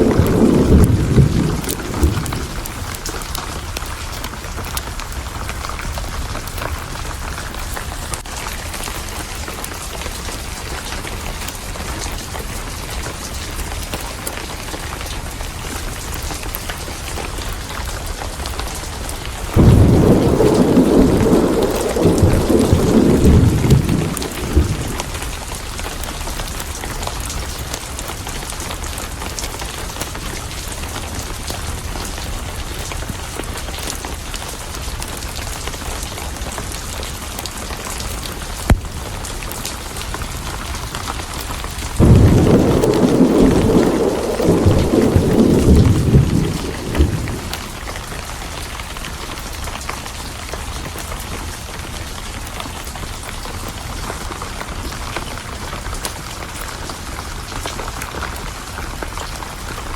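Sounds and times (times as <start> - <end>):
thunderclap rumbling: 0.0 - 4.6, 19.3 - 25.7, 41.9 - 48.4
steady rain: 0.0 - 59.9.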